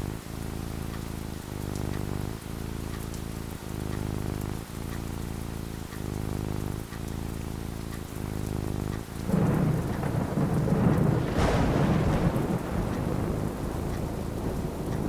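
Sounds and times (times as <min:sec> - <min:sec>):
steady rain falling: 0:00.0 - 0:15.0
thunder rumble and crack: 0:08.9 - 0:15.0.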